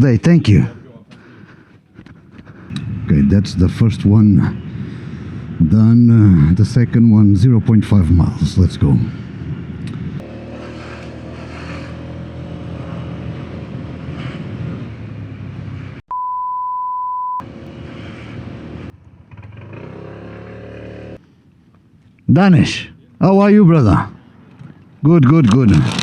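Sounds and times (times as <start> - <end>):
small motorcycle engine running: 10.2 - 13.4
high-pitched beep: 16.1 - 17.4.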